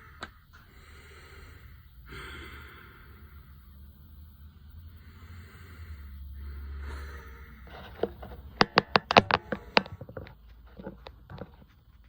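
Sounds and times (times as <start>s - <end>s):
sharp clicks and knocks: 7.7s - 12.0s.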